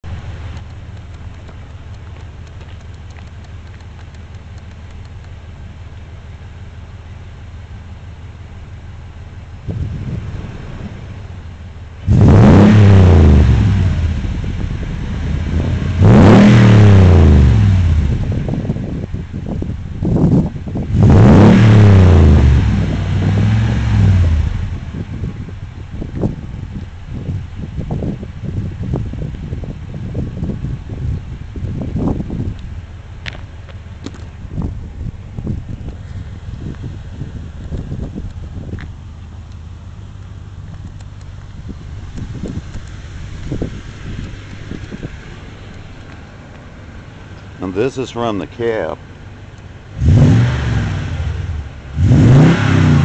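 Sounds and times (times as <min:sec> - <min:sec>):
truck engine idling: 0:00.0 - 0:12.2, 0:30.2 - 0:50.0
truck engine revving: 0:09.6 - 0:18.7, 0:20.8 - 0:25.2, 0:49.9 - 0:53.0.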